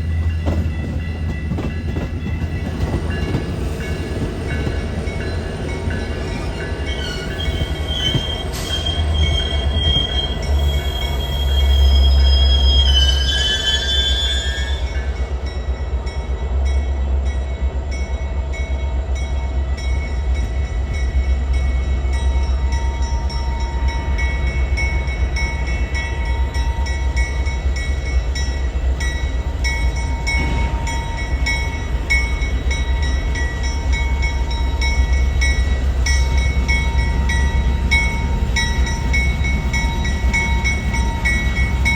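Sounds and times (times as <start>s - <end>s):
train wheels rumbling: 0.0s - 41.9s
high-pitched wheel squeal: 7.0s - 14.9s.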